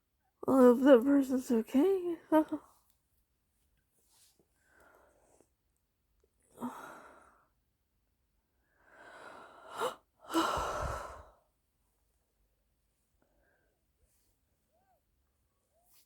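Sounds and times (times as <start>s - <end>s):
woman breathing heavily: 8.9s - 11.4s.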